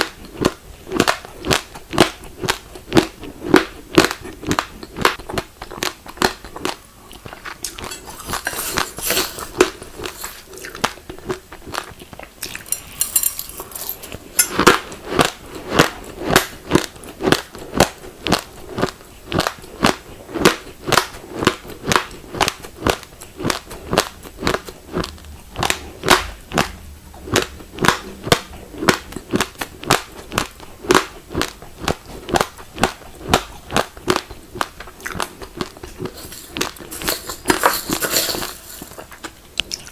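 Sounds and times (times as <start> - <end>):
chewing crunchy rice grains: 0.0 - 8.0, 9.5 - 13.0, 27.3 - 36.9.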